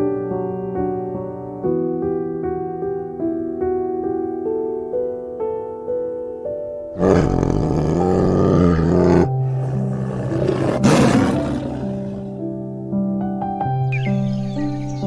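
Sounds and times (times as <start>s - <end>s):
soft piano music: 0.0s - 15.0s
tiger roaring: 7.0s - 12.4s.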